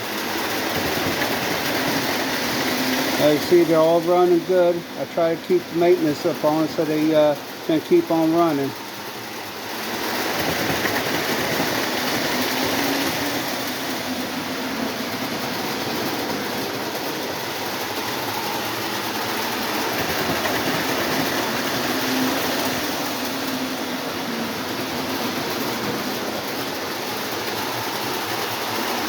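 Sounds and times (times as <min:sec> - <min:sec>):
model train running on metal track: 0:00.0 - 0:29.0
electric motors whirring: 0:07.9 - 0:29.0.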